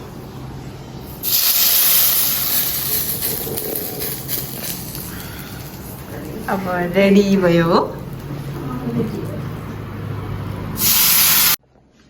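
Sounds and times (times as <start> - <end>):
hot oil sizzling: 1.0 - 7.0, 10.8 - 11.6.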